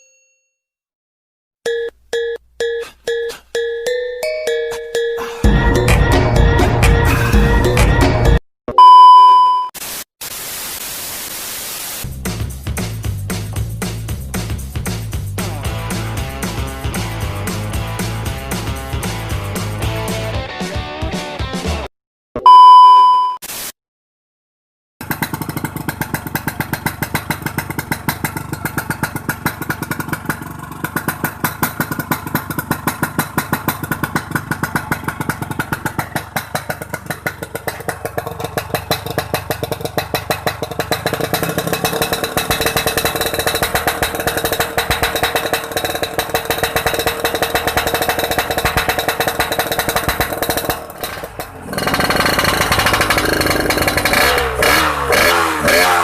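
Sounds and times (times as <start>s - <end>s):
motorcycle engine idling: 25.0s - 55.8s.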